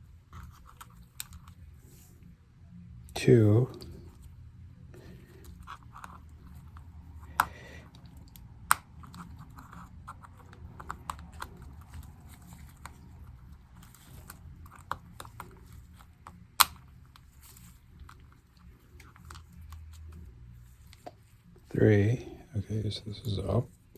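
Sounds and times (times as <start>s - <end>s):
sharp plastic snaps: 7.2s - 17.3s.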